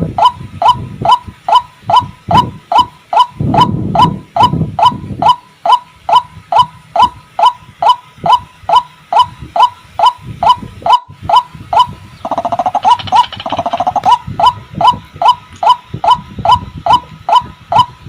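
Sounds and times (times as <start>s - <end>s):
waterhen calling: 6.6s - 16.2s
fast rattling bird call: 11.3s - 14.2s.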